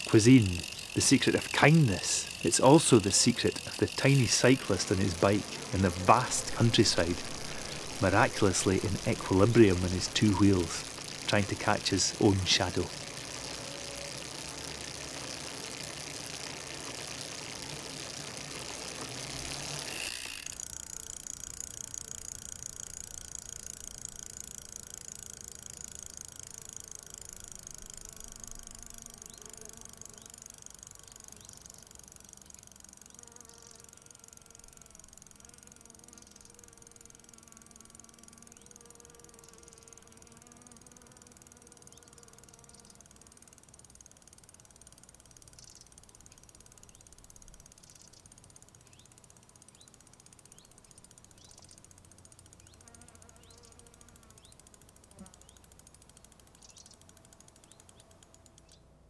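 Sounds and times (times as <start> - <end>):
buzzing hum of wavering tones: 0.0 - 43.7.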